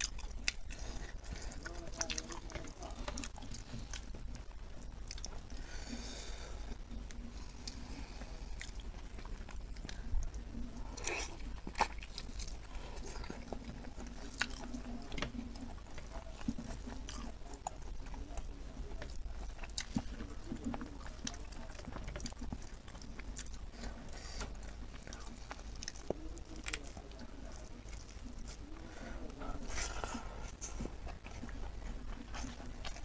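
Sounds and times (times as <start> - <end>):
wet chewing mouth clicks: 0.0 - 5.6, 8.5 - 28.7.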